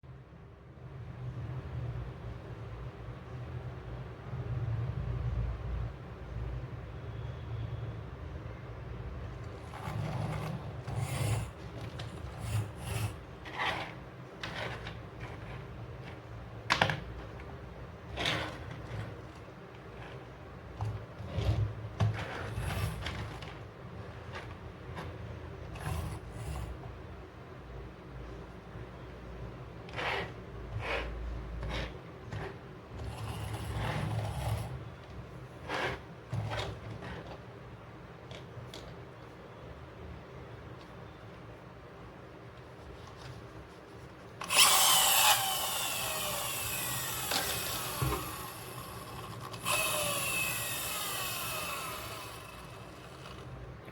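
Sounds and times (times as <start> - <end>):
toys rubbing and scraping: 9.3 - 27.0, 29.6 - 38.9, 42.6 - 53.6
plastic toys knocking and clicking: 11.0 - 19.4.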